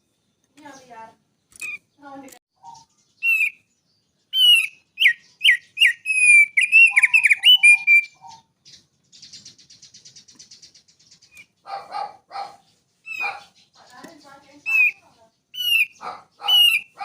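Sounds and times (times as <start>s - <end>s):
fast rattling bird trill: 0.6s - 17.0s
songbird whistling phrase: 2.6s - 3.7s, 4.3s - 8.4s.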